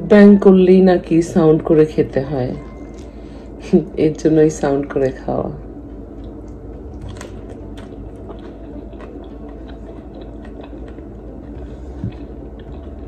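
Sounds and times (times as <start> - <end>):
steady low hum: 0.0 - 13.0
person chewing food: 2.6 - 3.5, 5.6 - 13.0.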